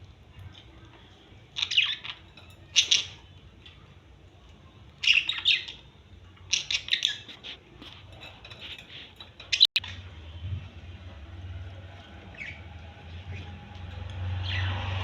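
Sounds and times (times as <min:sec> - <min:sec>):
parrots chirping: 0:01.6 - 0:03.5, 0:05.0 - 0:10.0, 0:12.3 - 0:13.6.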